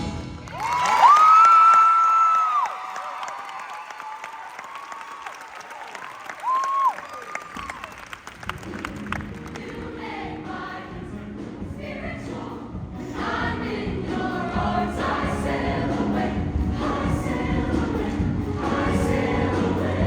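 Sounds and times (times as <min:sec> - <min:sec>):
choir singing in harmony: 0:09.3 - 0:20.0.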